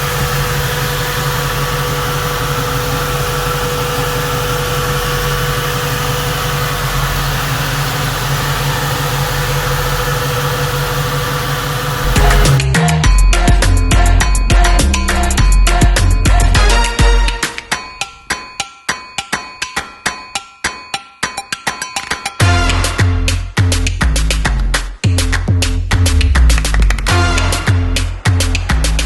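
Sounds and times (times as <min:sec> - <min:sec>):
car engine idling: 0:00.0 - 0:12.8, 0:27.4 - 0:29.0
music: 0:12.0 - 0:29.0.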